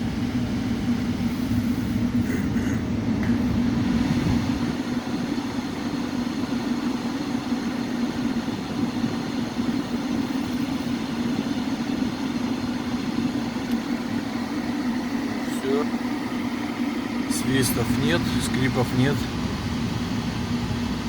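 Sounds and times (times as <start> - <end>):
blower fan humming: 0.0 - 21.0
rush of air: 1.0 - 6.5.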